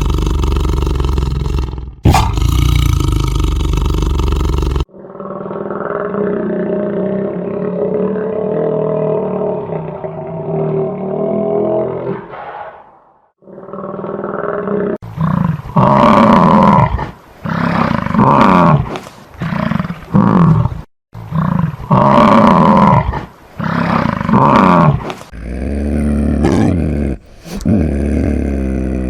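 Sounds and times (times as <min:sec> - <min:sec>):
large animal deep calls: 0:00.0 - 0:12.8, 0:25.4 - 0:29.0.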